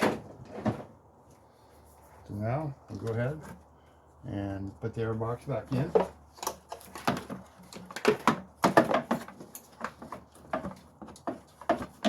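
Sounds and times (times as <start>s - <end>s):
plastic knocks and clunks: 5.7s - 12.0s.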